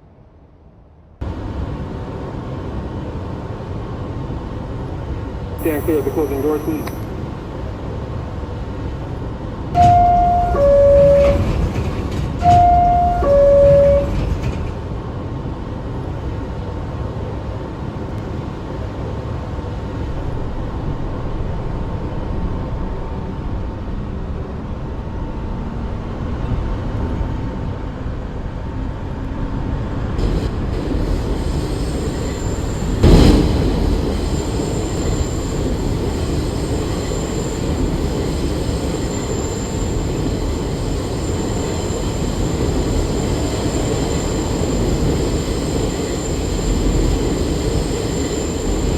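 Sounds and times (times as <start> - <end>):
train rumbling on rails: 0.0 - 48.9
two-tone descending chime: 9.8 - 11.5, 12.4 - 14.2
hiss: 30.2 - 44.6.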